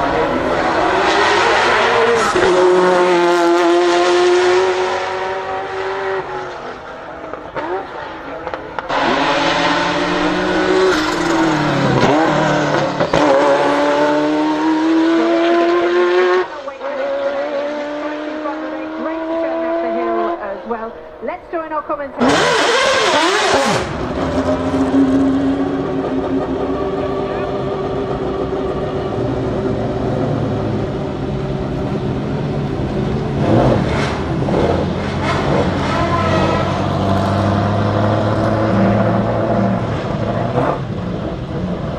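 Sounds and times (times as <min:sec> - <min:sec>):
car engine accelerating hard: 0:00.0 - 0:20.4, 0:22.2 - 0:41.9.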